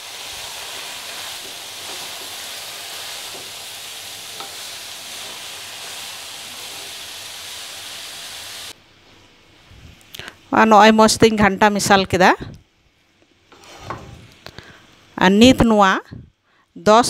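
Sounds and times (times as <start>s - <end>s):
vegetables frying hiss: 0.0s - 17.0s
spatula scraping pan: 0.9s - 3.6s, 13.5s - 14.2s.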